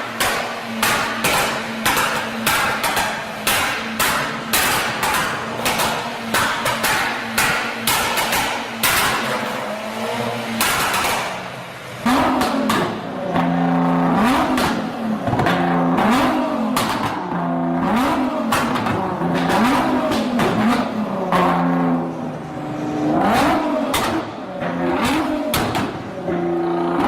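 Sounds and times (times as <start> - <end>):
sharp cracks: 0.0 - 9.5, 10.6 - 11.4
car engine revving: 0.0 - 27.0.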